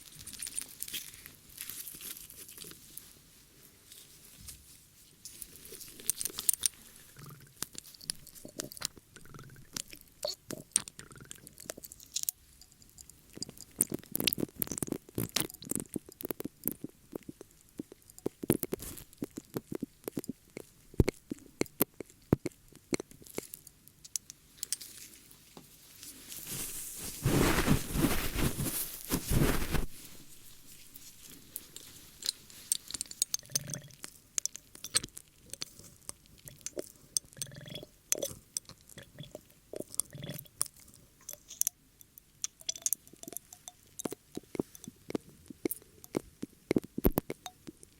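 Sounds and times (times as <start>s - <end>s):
dense rustling: 26.0s - 32.8s
ear cleaning scratching and clicking: 26.4s - 35.9s.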